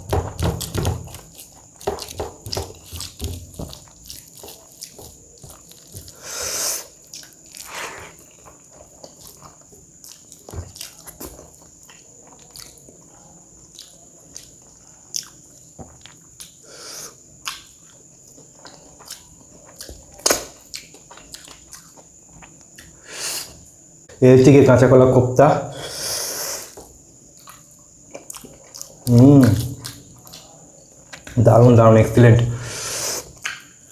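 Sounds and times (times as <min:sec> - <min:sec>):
crunchy bites: 0:00.0 - 0:23.0, 0:27.4 - 0:31.5
chewing with wet mouth clicks: 0:01.1 - 0:06.2, 0:06.9 - 0:16.6, 0:17.4 - 0:23.0, 0:27.3 - 0:31.4, 0:33.4 - 0:33.7.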